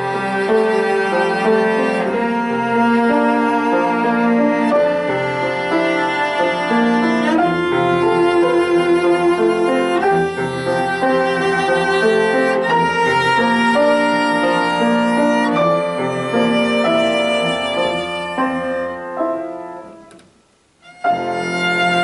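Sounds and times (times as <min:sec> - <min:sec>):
piano accompaniment: 0:00.0 - 0:22.0
violin melody: 0:00.0 - 0:22.0.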